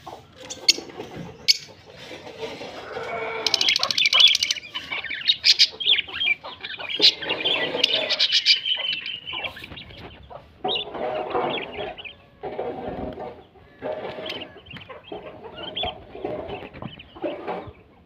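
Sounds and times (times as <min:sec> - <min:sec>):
birds chirping and calling: 0:00.0 - 0:18.0.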